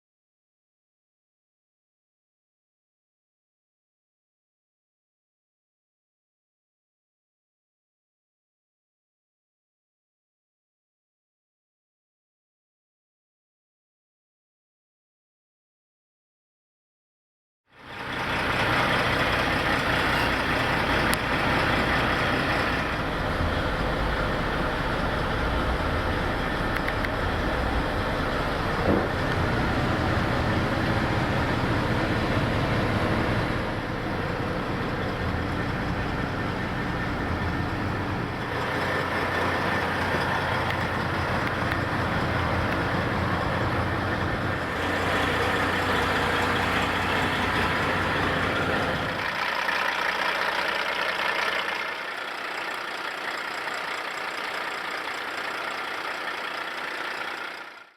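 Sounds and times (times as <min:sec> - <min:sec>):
diesel truck engine idling: 0:17.8 - 0:57.9.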